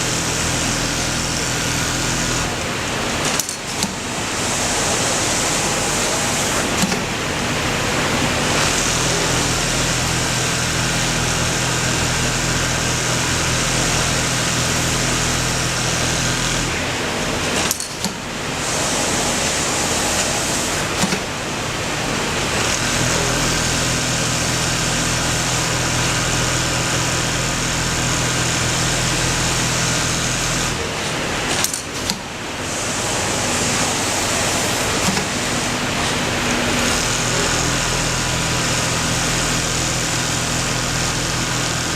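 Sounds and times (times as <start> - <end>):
sewing machine hum: 0.0 - 41.9.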